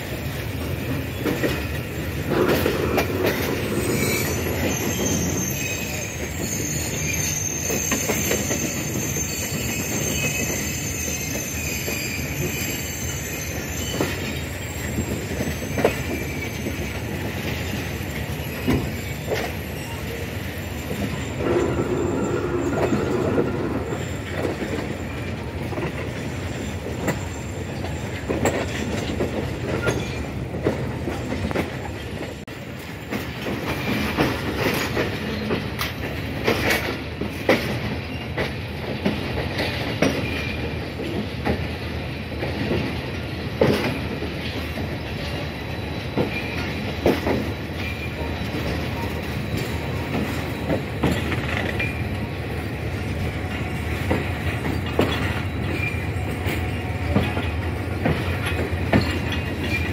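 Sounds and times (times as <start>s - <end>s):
passenger train rumbling on rails: 0.0s - 59.9s
high wheel squeal: 1.0s - 28.8s, 43.9s - 59.9s
carriages knocking and rattling: 48.2s - 59.9s.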